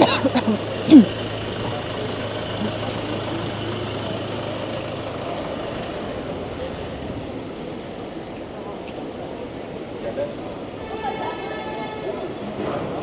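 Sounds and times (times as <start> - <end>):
vehicle engine idling: 0.0 - 8.3
city street noise: 0.0 - 13.0.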